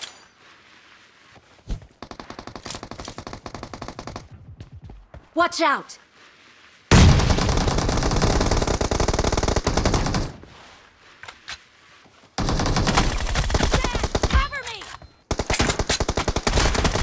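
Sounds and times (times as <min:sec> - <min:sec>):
video game automatic gunfire: 0:06.9 - 0:10.3, 0:15.3 - 0:17.0.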